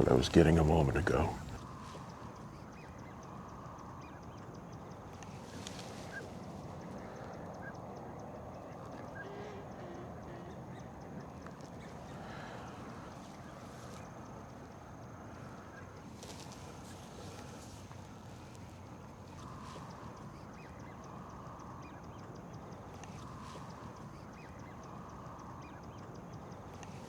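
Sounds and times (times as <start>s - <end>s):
distant bird calls: 0.0s - 1.6s, 6.6s - 14.2s
outdoor background noise: 0.0s - 27.0s.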